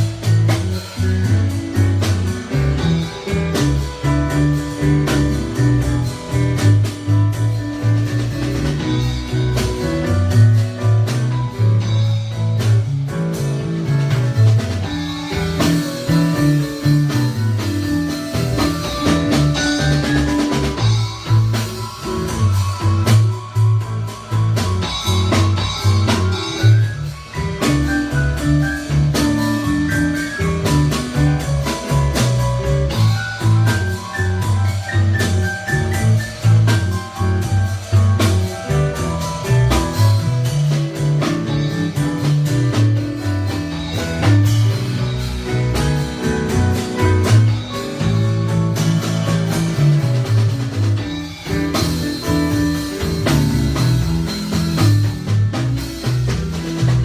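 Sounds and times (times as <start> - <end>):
drum kit: 0.0 - 57.0
guitar: 0.0 - 57.0
repeating bass line: 0.0 - 57.0.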